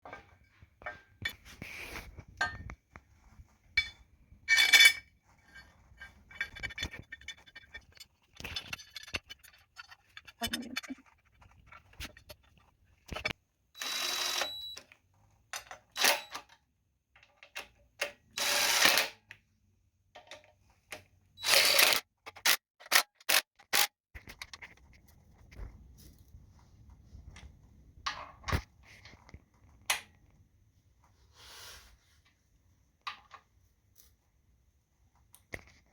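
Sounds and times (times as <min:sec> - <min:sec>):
scrapes and rustles: 0:00.1 - 0:13.4.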